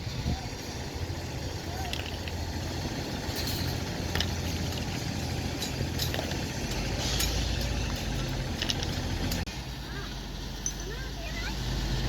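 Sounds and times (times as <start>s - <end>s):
diesel engine rumbling: 0.0s - 12.0s
metallic clinks: 1.5s - 9.4s, 10.6s - 11.1s.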